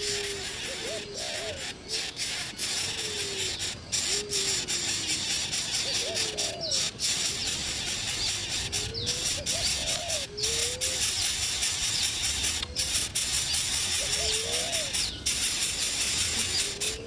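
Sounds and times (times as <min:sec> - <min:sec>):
birds cooing: 0:00.0 - 0:17.0
steady hiss: 0:00.0 - 0:17.0.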